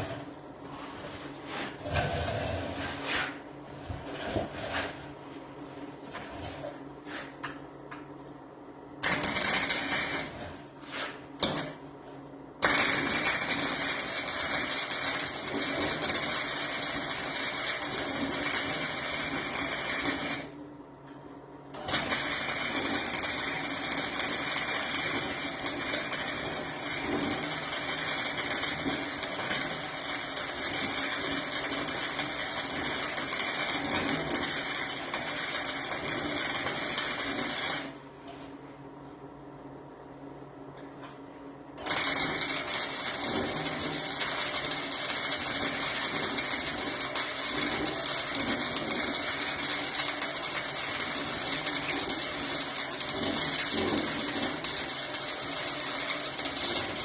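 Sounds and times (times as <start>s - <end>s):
arc welding on steel: 9.0s - 11.8s, 12.6s - 20.6s, 21.8s - 38.0s, 41.8s - 57.0s.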